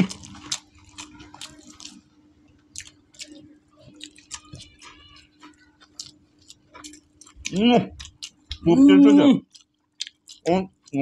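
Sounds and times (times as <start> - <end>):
chewing and lip-smacking: 0.0 - 11.0
faint steady hum: 0.0 - 11.0.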